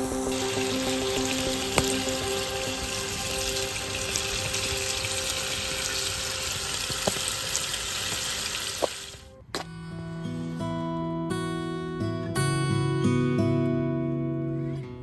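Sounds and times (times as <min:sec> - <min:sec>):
strummed acoustic guitar music: 0:00.0 - 0:07.6, 0:09.3 - 0:15.0
food sizzling in frying pan: 0:00.2 - 0:09.3.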